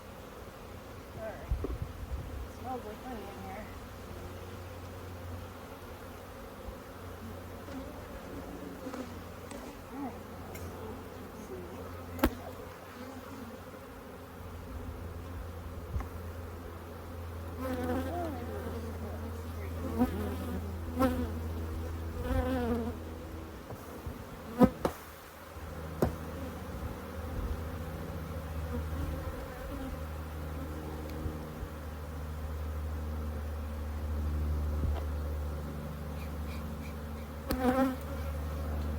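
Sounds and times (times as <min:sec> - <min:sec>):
honeybees buzzing: 0:00.0 - 0:38.9.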